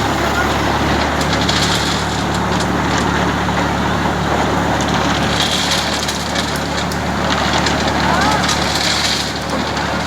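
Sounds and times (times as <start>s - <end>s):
concrete mixer clatter and rattling: 0.0s - 10.0s
tractor engine running: 0.0s - 10.0s.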